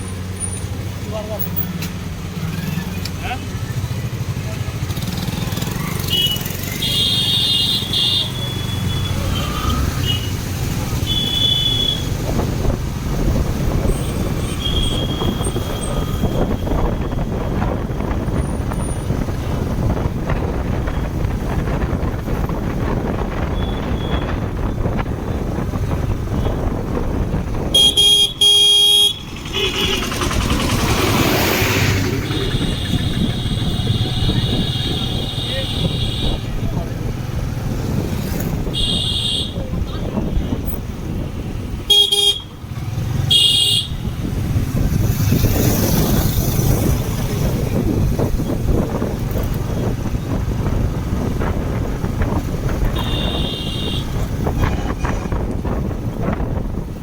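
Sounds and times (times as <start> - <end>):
motorcycle engine and road noise: 0.0 - 57.0
vehicle horns tooting: 6.0 - 10.4, 11.0 - 12.2, 14.1 - 17.5, 23.5 - 24.6, 27.7 - 30.6, 32.1 - 36.8, 38.6 - 40.8, 41.8 - 44.2, 52.7 - 55.3
loud blaring horn: 32.2 - 36.5, 41.9 - 42.5, 43.3 - 44.0, 52.9 - 54.2.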